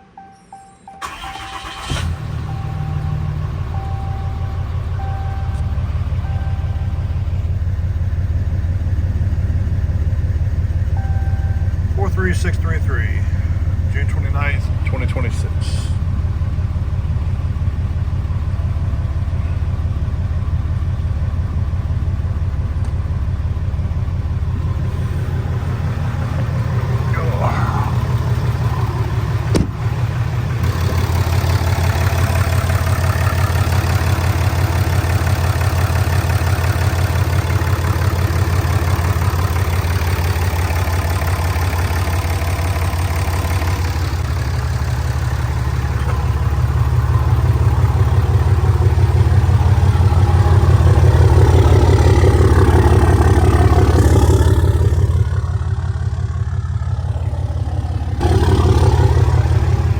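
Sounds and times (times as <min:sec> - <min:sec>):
diesel engine idling: 0:01.0 - 0:59.9.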